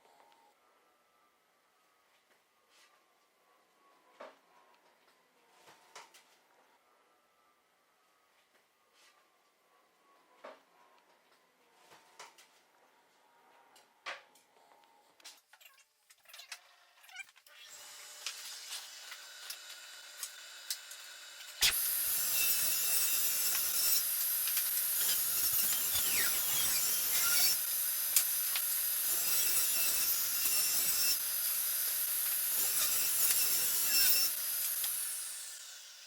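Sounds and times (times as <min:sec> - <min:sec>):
table saw cutting wood: 0:17.6 - 0:36.0.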